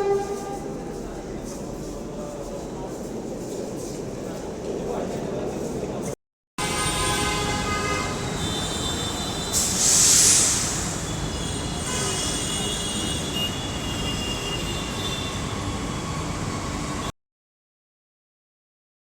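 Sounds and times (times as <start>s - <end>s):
train wheels squealing: 8.6s - 17.1s
loud hiss: 9.5s - 11.2s.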